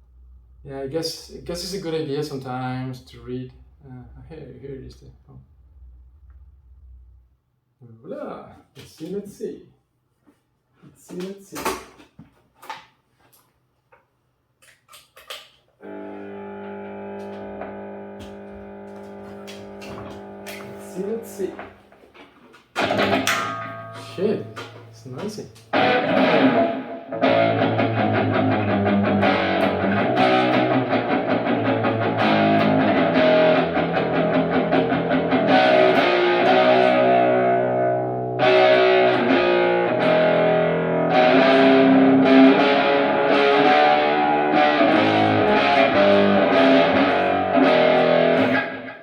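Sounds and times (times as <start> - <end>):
distorted electric guitar: 15.8 - 49.0.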